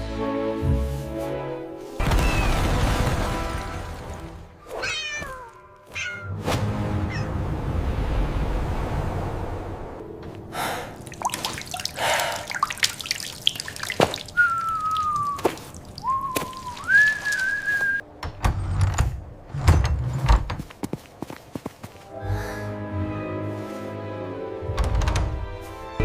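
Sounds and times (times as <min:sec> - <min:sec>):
whistled tone sliding: 0:14.3 - 0:18.0.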